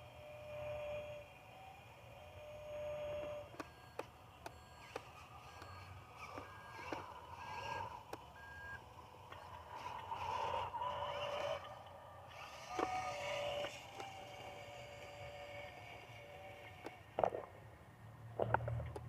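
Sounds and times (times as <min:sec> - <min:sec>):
steady low hum: 0:00.0 - 0:19.0
electronic reversing beeps: 0:02.4 - 0:11.8
sharp clicks: 0:03.5 - 0:07.1.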